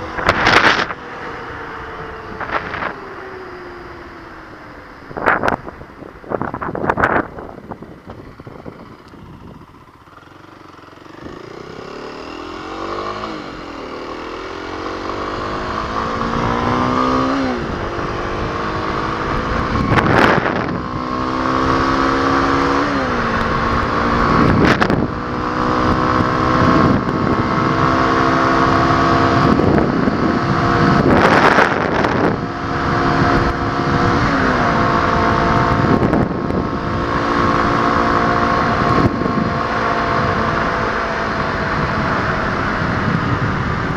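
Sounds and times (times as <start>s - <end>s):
wind on microphone: 0.0s - 1.0s, 5.0s - 10.0s, 14.8s - 43.9s
motorcycle engine accelerating: 0.0s - 43.9s.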